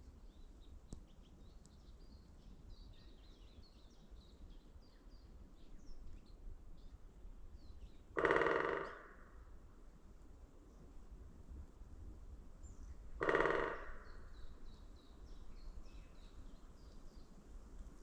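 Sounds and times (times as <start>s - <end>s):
tree creaking: 13.2s - 14.0s.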